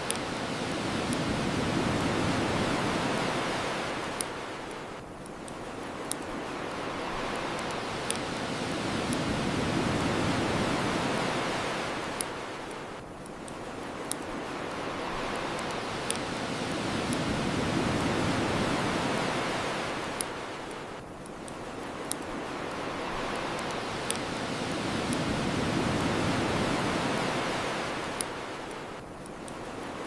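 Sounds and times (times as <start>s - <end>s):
ocean waves washing onto shore: 0.0s - 30.0s.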